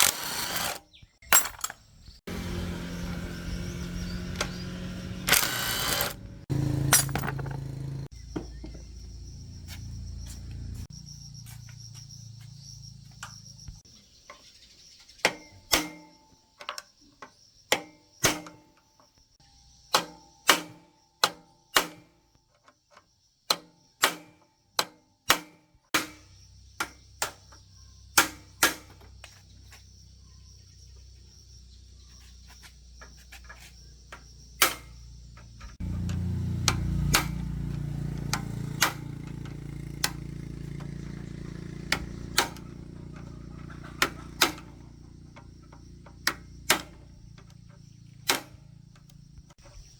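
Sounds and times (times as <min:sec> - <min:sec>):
metallic tool taps and clinks: 0:06.9 - 0:07.6.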